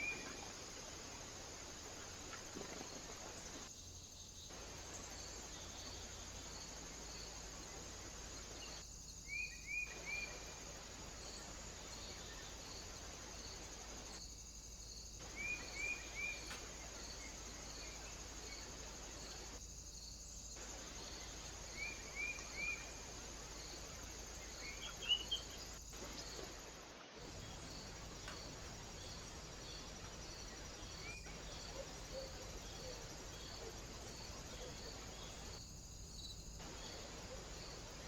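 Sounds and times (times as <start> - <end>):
faint insect chirping: 0.0 - 38.0.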